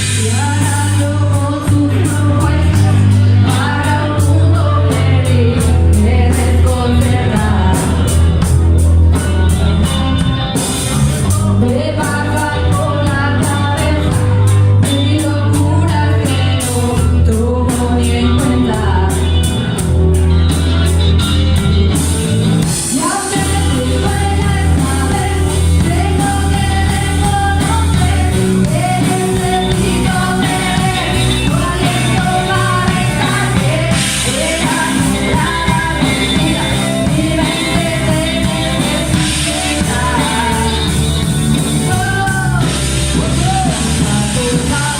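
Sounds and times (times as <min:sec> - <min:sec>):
rock song with sung vocal: 0:00.0 - 0:44.9.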